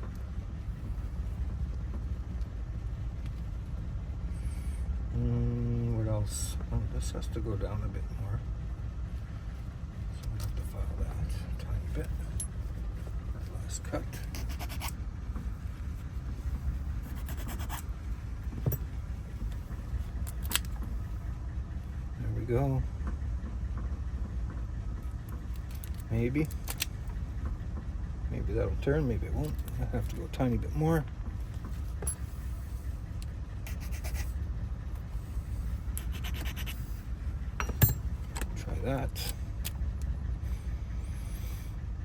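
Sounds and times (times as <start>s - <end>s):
steady low rumble: 0.0s - 42.0s
hand file rasping on metal key: 14.2s - 15.0s, 17.1s - 17.8s, 33.7s - 34.4s, 36.0s - 36.9s.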